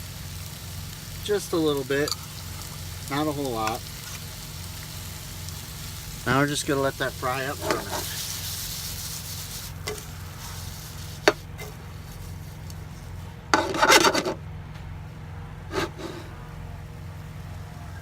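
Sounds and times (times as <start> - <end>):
chicken sizzling in a pan: 0.0 - 14.3, 15.7 - 18.0
steady low hum: 0.0 - 18.0
scraping rub: 7.5 - 14.4, 15.7 - 16.4.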